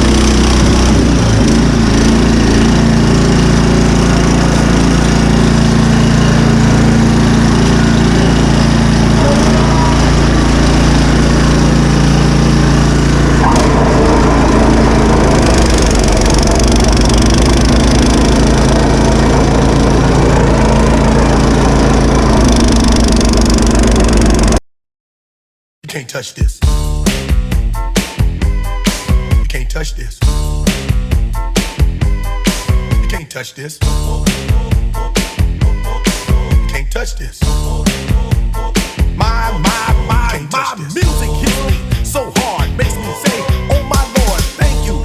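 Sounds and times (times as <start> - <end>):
snowblower engine running: 0.0 - 24.6, 33.8 - 36.7, 37.4 - 45.0.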